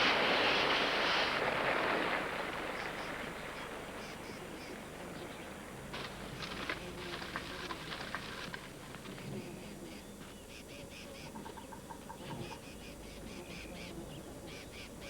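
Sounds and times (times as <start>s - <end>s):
seed pods pattering down: 0.0s - 9.3s
tree branches rustling: 0.0s - 9.4s.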